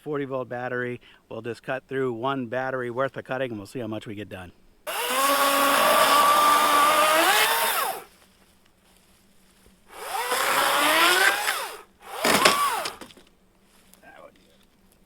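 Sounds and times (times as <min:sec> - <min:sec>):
electric chainsaw cutting wood: 0:04.9 - 0:08.1, 0:09.9 - 0:13.2.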